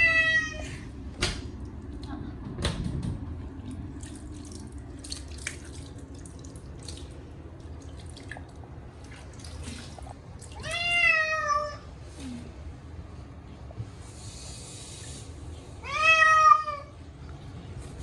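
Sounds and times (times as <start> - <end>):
cat meowing: 0.0 - 0.8, 10.6 - 11.8, 15.8 - 16.9
water dripping and splashing: 3.5 - 11.0.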